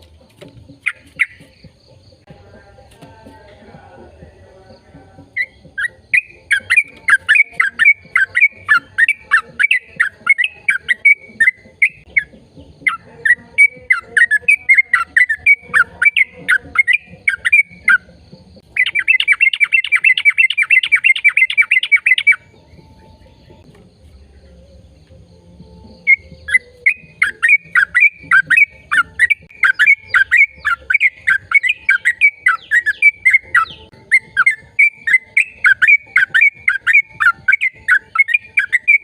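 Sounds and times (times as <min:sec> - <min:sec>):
bird chirping and trilling: 0:00.0 - 0:02.3, 0:04.7 - 0:23.8, 0:25.8 - 0:39.0.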